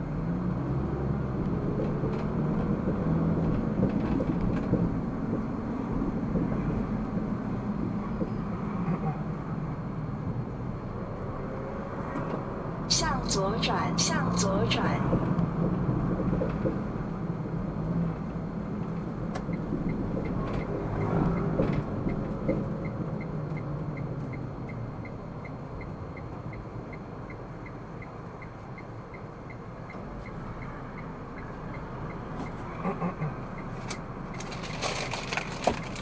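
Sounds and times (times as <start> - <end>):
engine and tyre rumble in car: 0.0 - 12.9, 15.0 - 36.0
turn signal ticking: 18.9 - 34.5.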